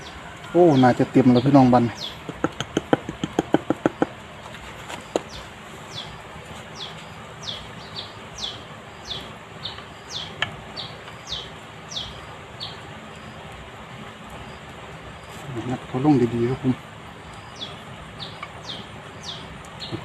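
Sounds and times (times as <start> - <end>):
sharp clicks: 2.2 - 4.2
bird calling: 4.8 - 13.3, 17.2 - 20.0.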